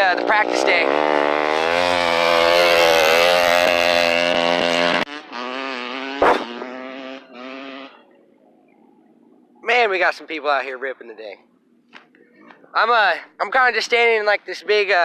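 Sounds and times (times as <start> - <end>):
motorcycle engine running: 0.0 - 9.6
sharp knock: 6.2 - 6.7.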